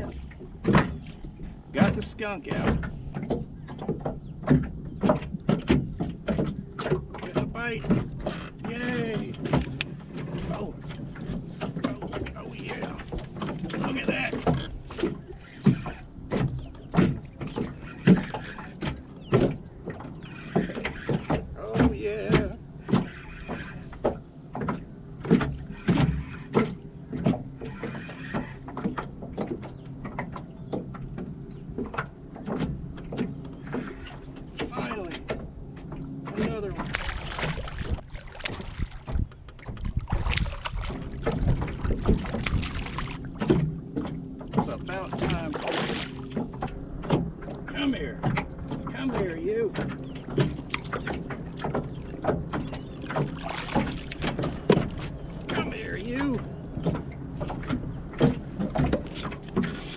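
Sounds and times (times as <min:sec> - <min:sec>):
knocks and thuds on boat: 0:00.0 - 0:59.9
wind rumbling on microphone: 0:36.4 - 0:47.4.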